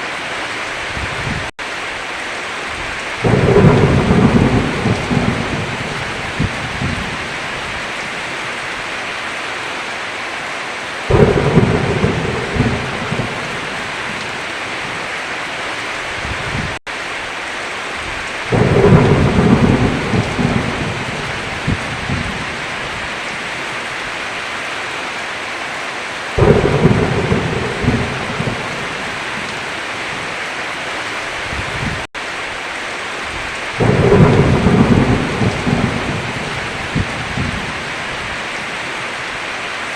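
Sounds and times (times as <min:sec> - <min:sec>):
heavy rain: 0:00.0 - 0:39.9
rolling thunder rumbles: 0:02.8 - 0:08.2, 0:11.1 - 0:15.0, 0:18.0 - 0:23.4, 0:26.4 - 0:30.3, 0:33.3 - 0:38.7.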